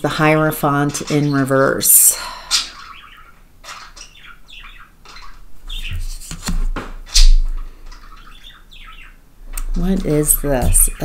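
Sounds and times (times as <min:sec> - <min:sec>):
small bird chirping and squawking: 0:00.8 - 0:06.3, 0:07.0 - 0:11.0
bumps or knocks: 0:09.6 - 0:11.0.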